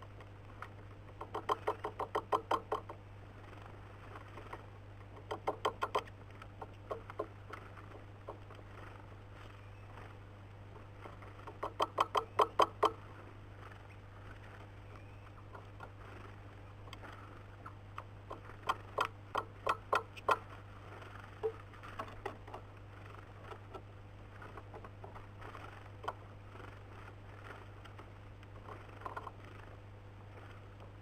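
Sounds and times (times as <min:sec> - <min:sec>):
bird pecking on wood: 0:01.1 - 0:03.0, 0:04.5 - 0:08.7, 0:11.4 - 0:13.0, 0:18.0 - 0:20.5.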